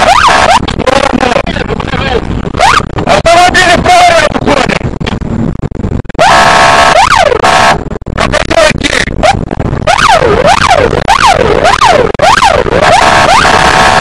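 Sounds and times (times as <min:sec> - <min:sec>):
police siren blasts: 0:00.0 - 0:00.6, 0:06.2 - 0:07.8, 0:09.8 - 0:14.0
police siren yelp: 0:00.0 - 0:00.6, 0:02.6 - 0:02.9, 0:06.2 - 0:07.8, 0:09.8 - 0:14.0.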